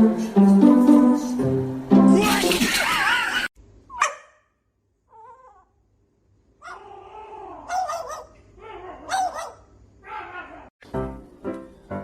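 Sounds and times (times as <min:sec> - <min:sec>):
cat meowing and yowling: 0:06.6 - 0:10.7.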